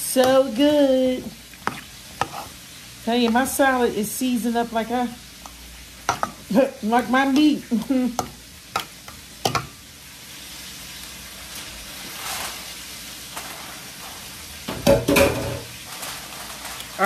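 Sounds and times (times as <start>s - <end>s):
chicken sizzling in oil: 0.0s - 17.0s
knife tapping steel bowl: 6.1s - 6.4s, 9.5s - 9.7s.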